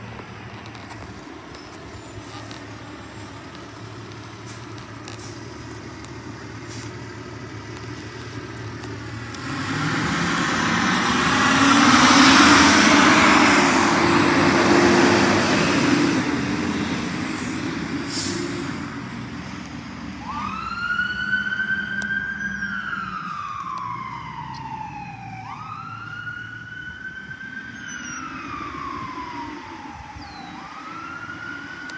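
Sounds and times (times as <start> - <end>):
fire engine driving past: 0.0 - 31.9
siren whooping: 9.3 - 17.4, 20.2 - 31.9.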